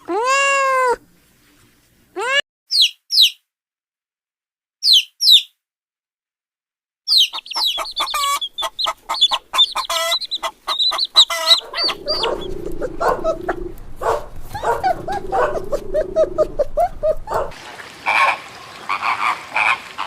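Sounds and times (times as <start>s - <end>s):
chicks peeping: 7.1s - 17.5s.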